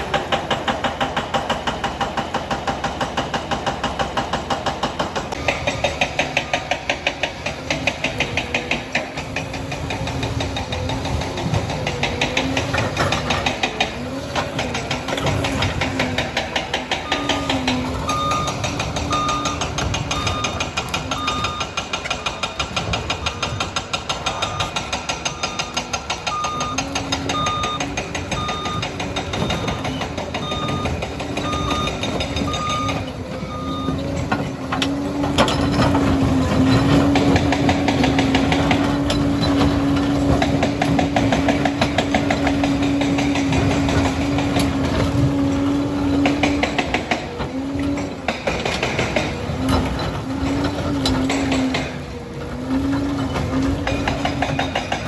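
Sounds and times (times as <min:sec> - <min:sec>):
diesel engine running: 0:00.0 - 0:55.0
tracks clattering: 0:00.0 - 0:55.0
reversing alarm beeping: 0:15.2 - 0:22.7, 0:24.2 - 0:34.4.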